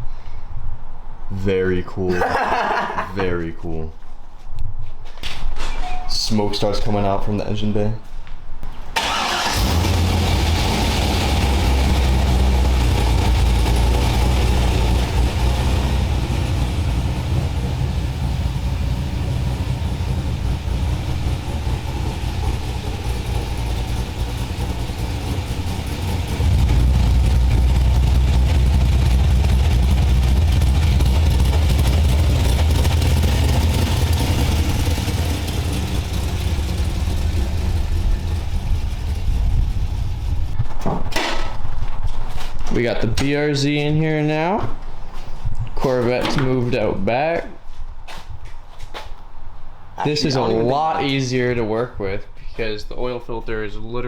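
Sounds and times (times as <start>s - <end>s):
car engine idling: 9.0s - 40.6s.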